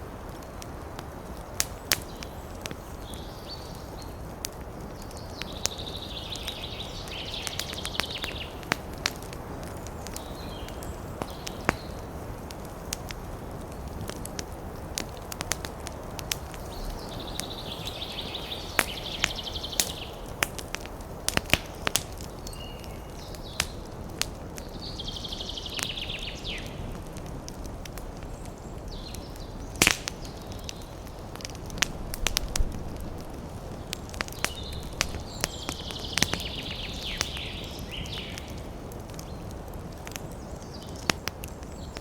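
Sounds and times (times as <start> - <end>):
wood fire crackling and popping: 0.0 - 42.0
steady low rumble: 31.3 - 35.9.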